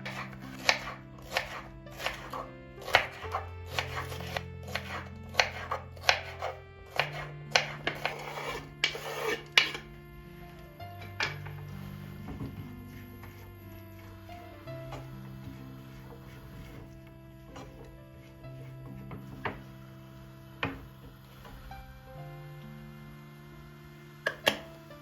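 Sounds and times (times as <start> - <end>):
knife chopping on cutting board: 0.0 - 9.8.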